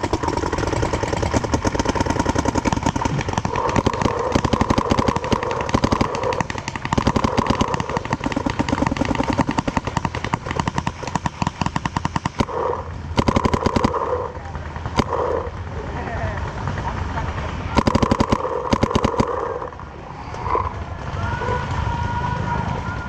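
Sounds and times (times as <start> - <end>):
paintball guns firing rapidly: 0.0 - 21.3.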